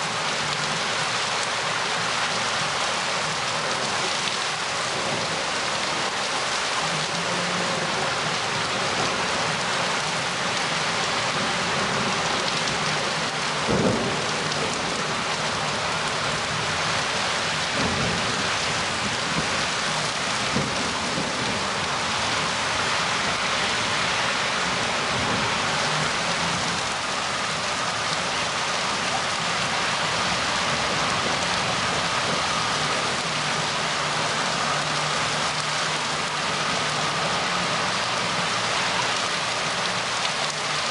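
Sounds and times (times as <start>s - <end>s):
steady rain falling: 0.0s - 40.9s
thunder cracks: 13.6s - 14.8s.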